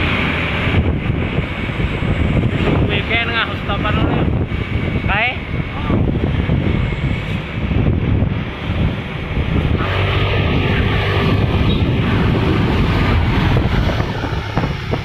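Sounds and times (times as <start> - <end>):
wind noise on microphone: 0.0 - 15.0
vehicle engine running: 5.8 - 15.0.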